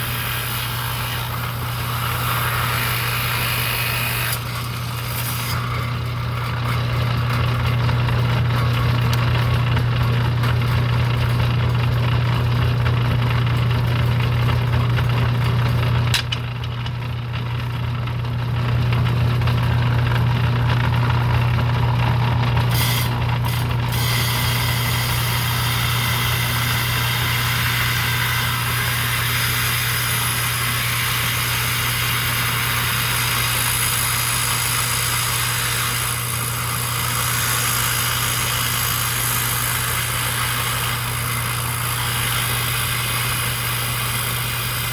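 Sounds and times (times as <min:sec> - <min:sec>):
saw blade cutting stone: 0:00.0 - 0:09.6, 0:22.6 - 0:44.9
saw motor humming: 0:00.0 - 0:44.9.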